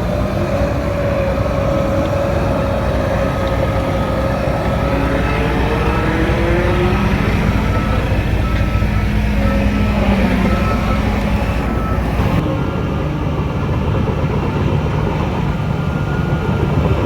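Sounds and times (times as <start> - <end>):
diesel machinery rumbling: 0.0 - 17.0
falling machine whine: 0.7 - 12.4
rising machine whine: 0.7 - 12.4.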